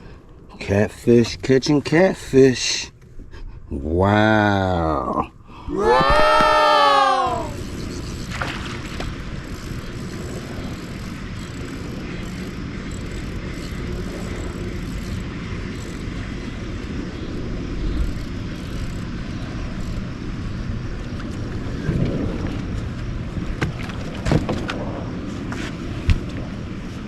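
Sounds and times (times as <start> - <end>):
boat motor droning: 4.2 - 25.6
wind noise: 5.6 - 27.0.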